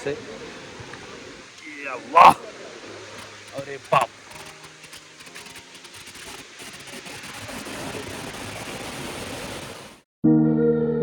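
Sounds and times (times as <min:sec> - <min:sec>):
music with sustained chords: 0:00.0 - 0:01.6
rushing water: 0:00.0 - 0:09.8.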